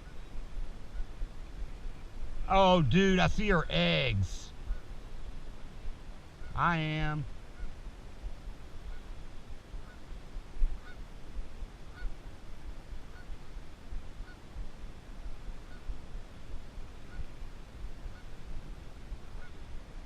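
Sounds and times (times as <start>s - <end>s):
low wind rumble: 0.0s - 20.0s
goose honking faintly: 8.9s - 9.1s, 9.8s - 10.1s, 10.8s - 11.0s, 11.9s - 12.2s, 13.1s - 13.4s, 17.0s - 17.4s, 18.1s - 18.5s, 19.2s - 19.7s.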